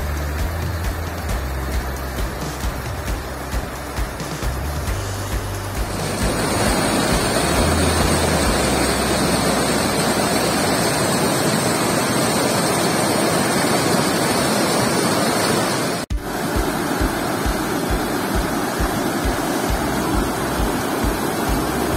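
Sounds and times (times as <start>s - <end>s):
waterfall rushing: 0.0s - 21.9s.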